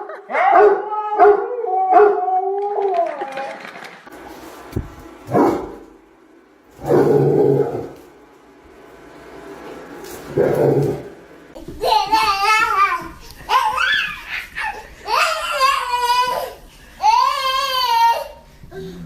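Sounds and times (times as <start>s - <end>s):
dog howling: 0.3s - 3.3s.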